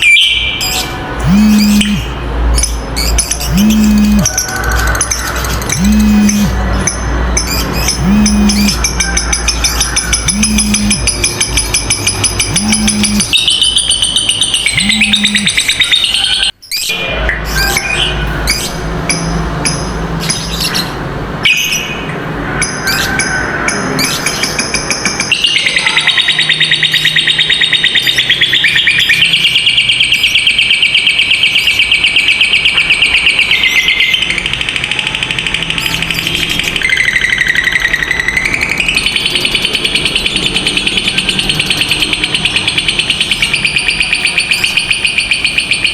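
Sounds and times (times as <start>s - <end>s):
bird rapid high trill: 0.0s - 6.6s, 7.5s - 16.5s
lovebirds chattering: 0.0s - 16.9s, 24.0s - 45.9s.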